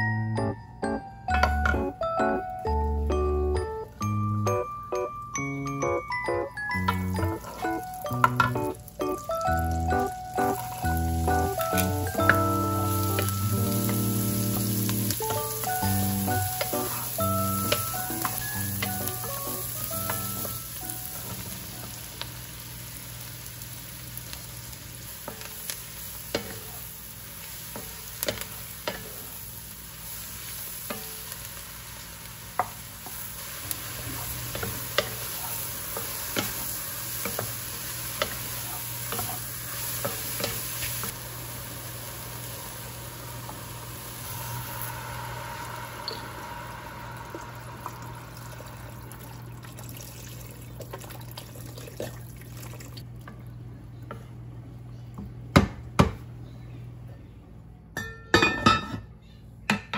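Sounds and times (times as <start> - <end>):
vegetables sizzling in a pot: 1.4 - 53.1
broth being poured: 42.5 - 53.0.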